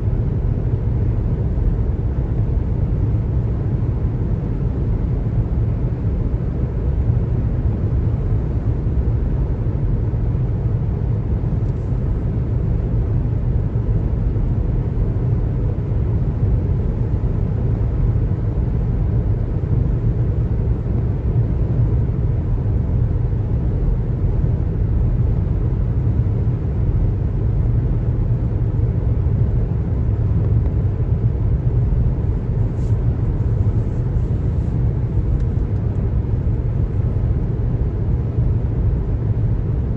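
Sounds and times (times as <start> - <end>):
car road noise at highway speed: 0.0 - 39.9.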